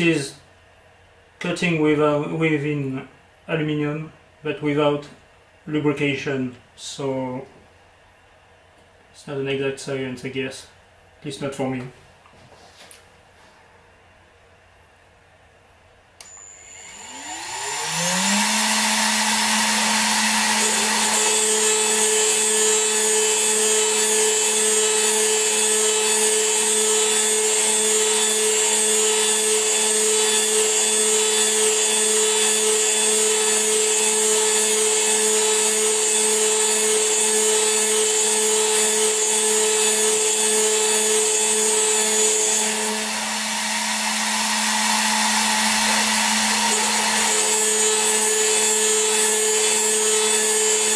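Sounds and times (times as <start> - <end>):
end mill cutting metal: 16.2 - 50.9.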